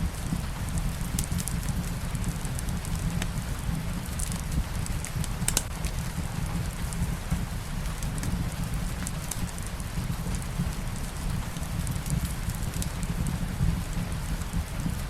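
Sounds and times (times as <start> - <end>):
steady rain: 0.0 - 15.0
wood fire crackling: 0.0 - 15.0.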